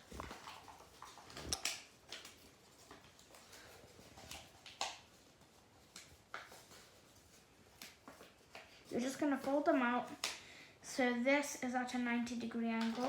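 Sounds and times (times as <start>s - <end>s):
paper crinkling and rustling: 0.0s - 10.3s.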